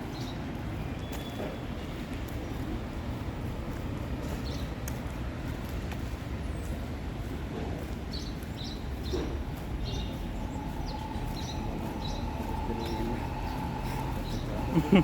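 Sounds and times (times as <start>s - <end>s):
low traffic rumble: 0.0s - 15.0s
high bird chirps: 8.2s - 15.0s.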